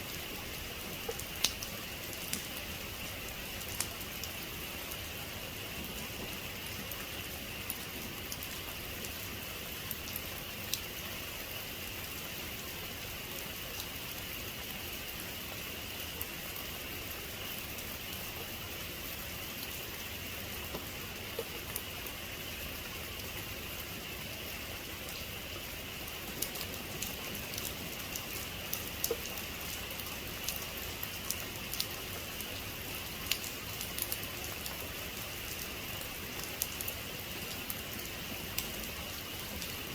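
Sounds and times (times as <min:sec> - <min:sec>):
raindrops ticking close by: 0:00.0 - 0:39.9
heavy rain falling: 0:24.4 - 0:39.9.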